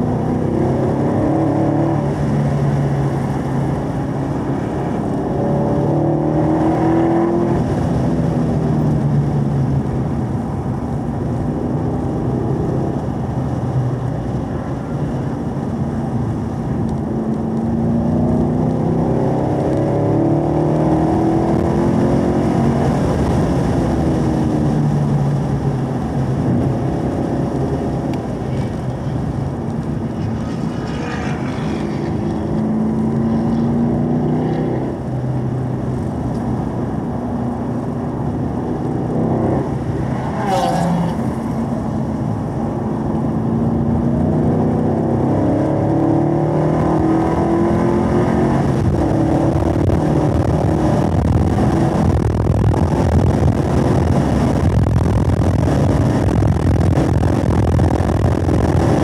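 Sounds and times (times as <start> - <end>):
car engine accelerating: 0.0 - 59.0
road noise: 0.0 - 59.0.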